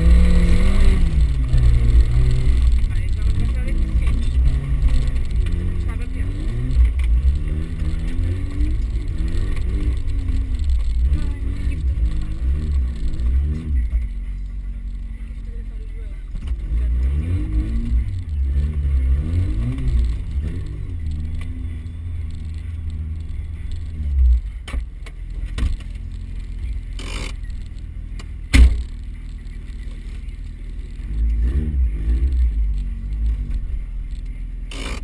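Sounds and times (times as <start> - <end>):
car engine revving: 0.0 - 35.0
sharp thump: 28.5 - 28.9.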